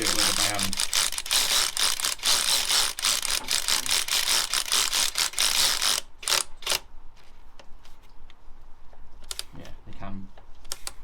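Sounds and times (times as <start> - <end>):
ratchet wrench clicking: 0.0 - 6.8.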